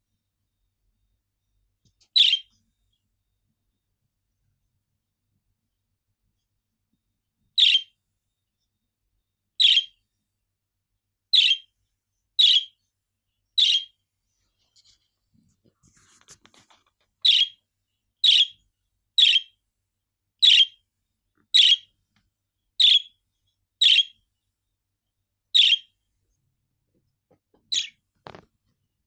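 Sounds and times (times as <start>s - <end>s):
budgerigar chirping: 2.1s - 2.5s, 7.6s - 7.9s, 9.6s - 10.0s, 11.3s - 11.7s, 12.4s - 12.8s, 13.6s - 14.0s, 17.2s - 17.6s, 18.2s - 18.6s, 19.2s - 19.6s, 20.4s - 20.8s, 21.5s - 21.9s, 22.8s - 23.2s, 23.8s - 24.2s, 25.5s - 26.0s, 27.7s - 28.0s.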